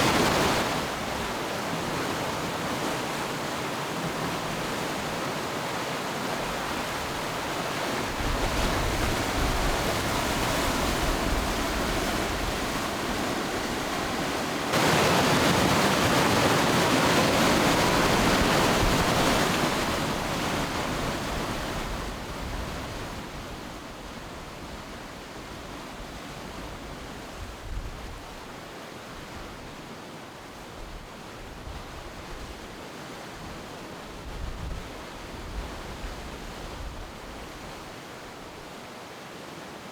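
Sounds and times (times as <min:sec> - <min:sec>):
river rapids roaring: 0:00.0 - 0:22.2.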